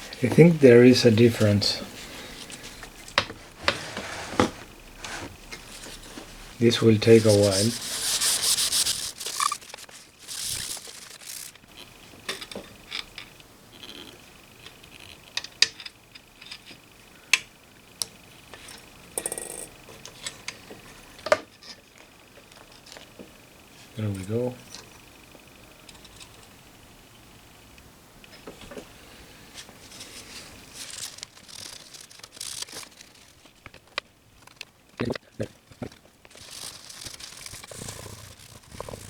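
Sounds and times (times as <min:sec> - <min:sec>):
low room hiss: 0:00.0 - 0:39.0
scrubbing: 0:03.4 - 0:11.6, 0:36.3 - 0:39.0
light clicks of small parts: 0:24.1 - 0:25.0.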